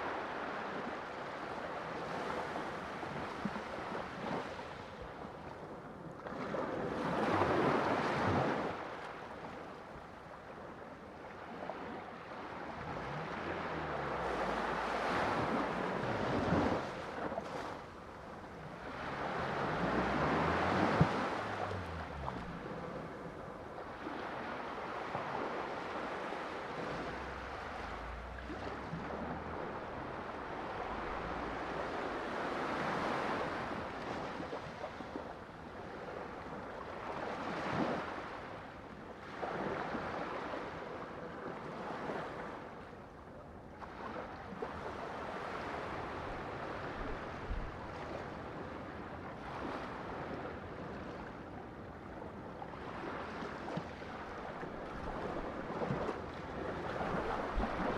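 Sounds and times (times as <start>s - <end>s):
sea waves breaking: 0.0s - 42.9s, 43.8s - 57.9s.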